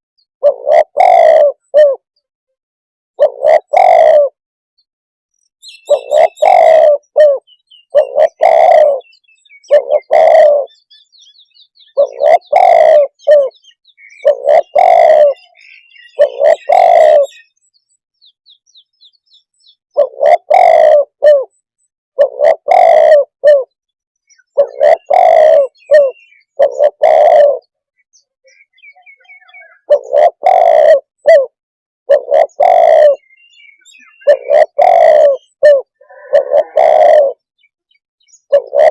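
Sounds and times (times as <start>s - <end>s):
dove cooing: 0.4s - 2.1s, 3.2s - 4.4s, 5.8s - 10.9s, 11.8s - 17.5s, 19.9s - 21.6s, 22.2s - 27.7s, 28.8s - 37.4s, 38.5s - 38.9s
small birds chirping: 5.3s - 31.2s, 32.1s - 38.9s.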